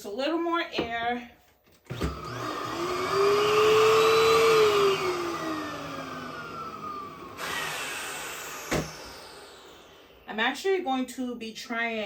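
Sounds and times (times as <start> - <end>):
electric air pump blower hum: 1.9 - 10.4.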